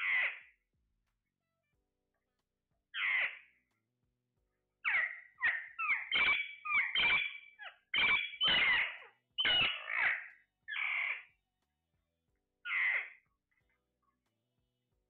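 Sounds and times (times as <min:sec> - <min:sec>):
parrot squawking: 0:00.0 - 0:00.4, 0:03.0 - 0:03.4, 0:04.8 - 0:11.3, 0:12.6 - 0:13.2.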